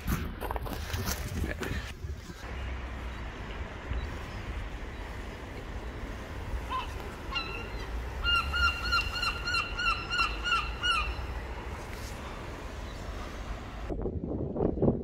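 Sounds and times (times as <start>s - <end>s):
bird calling repeated notes: 6.5s - 11.4s.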